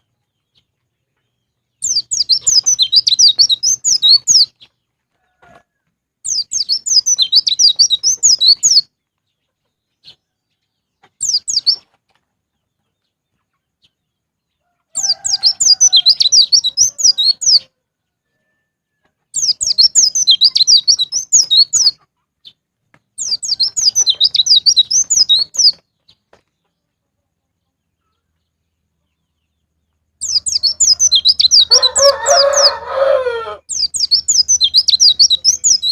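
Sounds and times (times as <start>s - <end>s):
bird twittering chirps: 0.0s - 4.8s, 6.2s - 12.0s, 14.9s - 17.7s, 19.3s - 22.6s, 23.2s - 26.7s, 28.0s - 35.9s
lower bird call: 14.9s - 17.8s, 30.2s - 35.9s.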